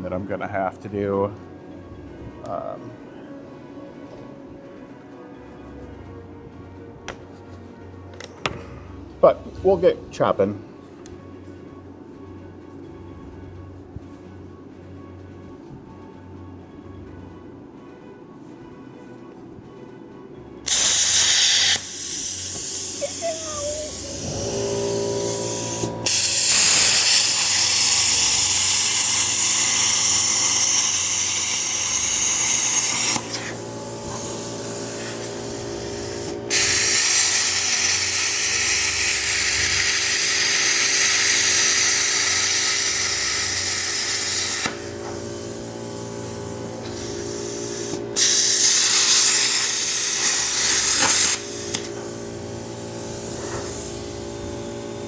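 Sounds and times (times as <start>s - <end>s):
machine humming: 20.7s - 55.0s
plasma cutter torch hissing: 20.7s - 55.0s.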